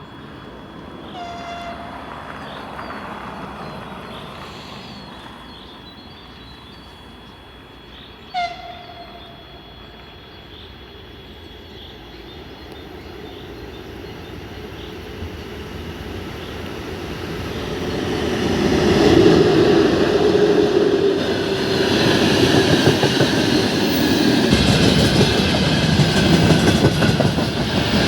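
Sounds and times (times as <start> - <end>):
train rumble: 0.0 - 28.0
train whistle toot: 1.1 - 2.2, 8.3 - 10.0.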